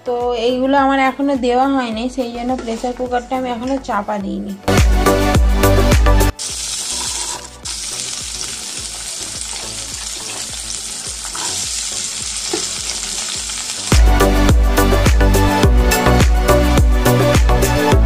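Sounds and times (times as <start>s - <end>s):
background music with steady beat: 0.0s - 18.0s
green beans sizzling in oil: 6.3s - 14.0s.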